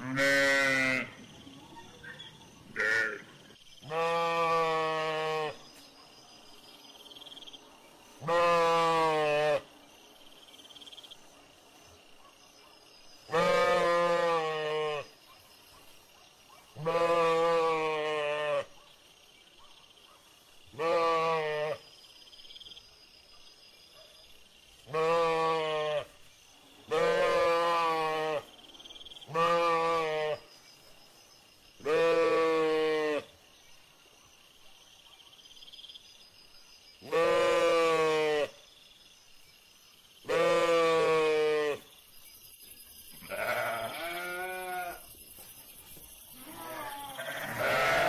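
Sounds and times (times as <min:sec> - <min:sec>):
sheep bleating: 0:00.0 - 0:01.1, 0:02.8 - 0:03.2, 0:03.9 - 0:05.6, 0:08.2 - 0:09.6, 0:13.3 - 0:15.1, 0:16.8 - 0:18.7, 0:20.8 - 0:21.8, 0:24.9 - 0:26.1, 0:26.9 - 0:28.4, 0:29.3 - 0:30.4, 0:31.8 - 0:33.2, 0:37.1 - 0:38.5, 0:40.3 - 0:41.8, 0:43.2 - 0:45.0, 0:46.4 - 0:48.0.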